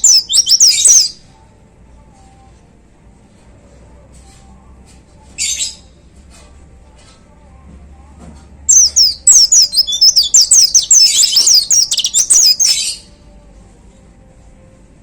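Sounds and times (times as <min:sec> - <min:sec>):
bird singing rapid sliding chirps: 0:00.0 - 0:01.2, 0:08.7 - 0:13.0.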